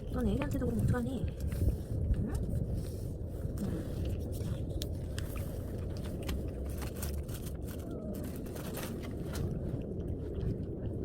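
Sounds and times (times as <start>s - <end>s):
low rumble: 0.0s - 11.0s
cat crunching dry food: 4.0s - 11.0s.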